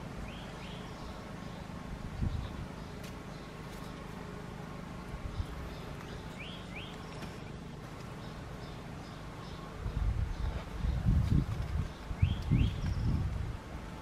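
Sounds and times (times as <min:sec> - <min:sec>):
low outdoor rumble: 0:00.0 - 0:14.0
bird chirps: 0:00.2 - 0:03.6, 0:05.3 - 0:11.1, 0:11.8 - 0:13.2.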